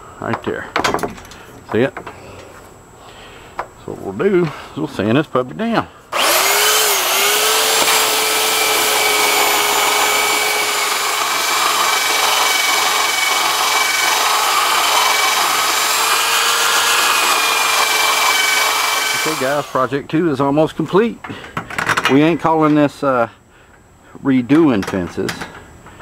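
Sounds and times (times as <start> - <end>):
electric sander on wood: 6.1 - 19.8.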